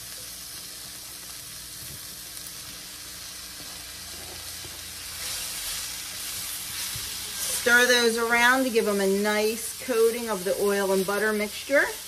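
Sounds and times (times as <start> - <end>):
mushrooms and onion sizzling: 0.0 - 12.0
spatula stirring: 5.1 - 8.8.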